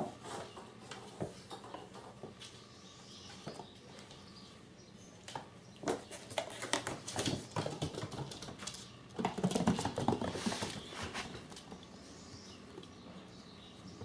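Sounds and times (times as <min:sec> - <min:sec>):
kitten scratching and rustling: 0:06.0 - 0:11.9.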